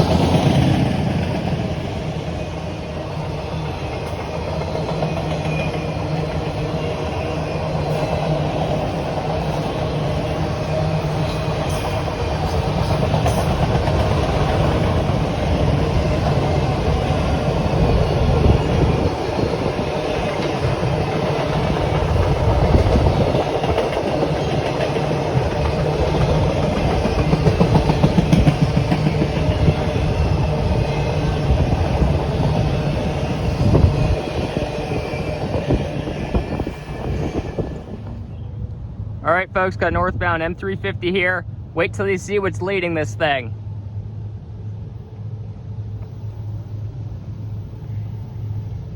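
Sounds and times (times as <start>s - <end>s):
train wheels clicking on rails: 0.0s - 38.8s.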